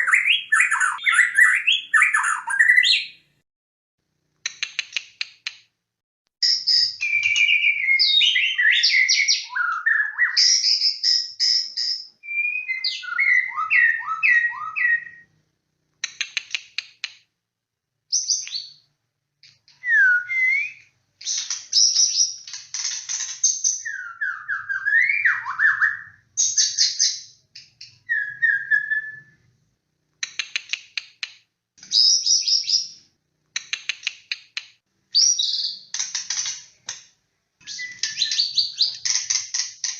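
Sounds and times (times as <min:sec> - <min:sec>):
songbird singing: 0:00.0 - 0:03.3, 0:06.4 - 0:15.3, 0:23.6 - 0:29.4, 0:37.6 - 0:39.9.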